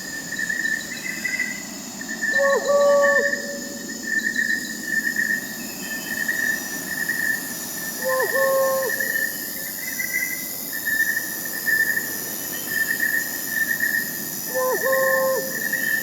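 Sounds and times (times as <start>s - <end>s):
crickets chirping: 0.0s - 16.0s
high insect trill: 0.0s - 16.0s
owl hoot: 2.3s - 3.8s, 8.0s - 9.3s, 14.5s - 16.0s.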